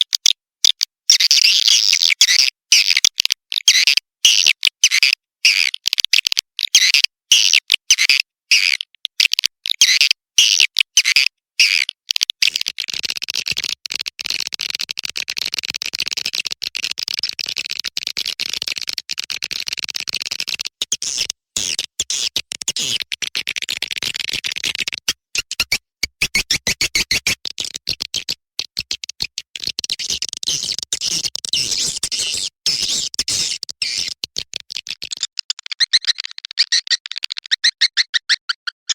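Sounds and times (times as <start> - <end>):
swiftlets twittering chirps: 30.5 - 34.2.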